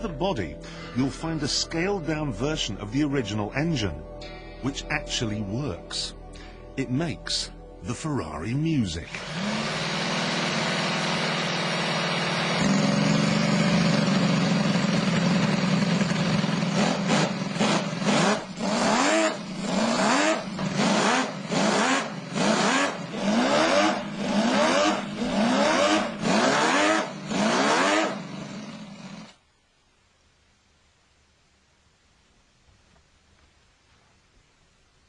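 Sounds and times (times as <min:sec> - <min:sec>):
model engine revving: 0:09.0 - 0:29.4.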